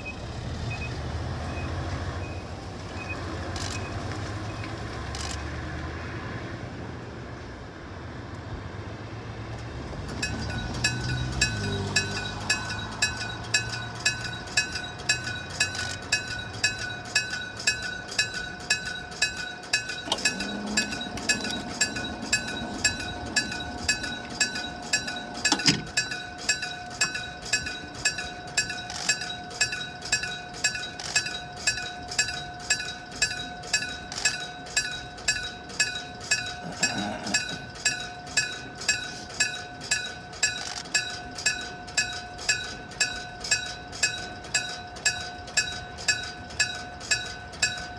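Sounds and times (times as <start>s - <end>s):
level crossing bell ringing: 10.1s - 47.9s.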